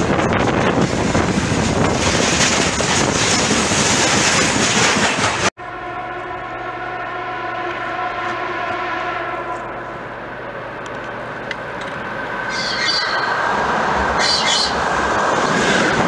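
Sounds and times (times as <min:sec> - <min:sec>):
freight wagons rolling on rails: 0:00.0 - 0:05.5
train horn: 0:05.6 - 0:10.9, 0:12.2 - 0:14.8.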